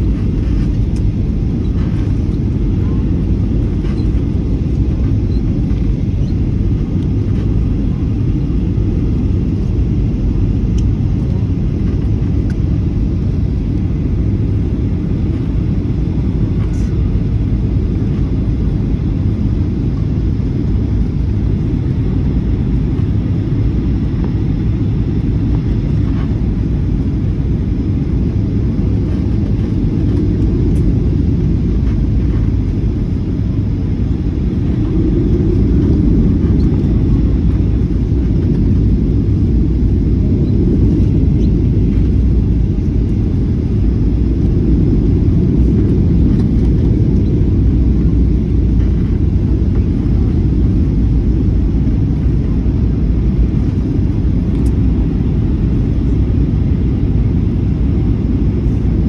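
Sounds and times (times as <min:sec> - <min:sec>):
jet engine cabin rumble: 0:00.0 - 0:59.0.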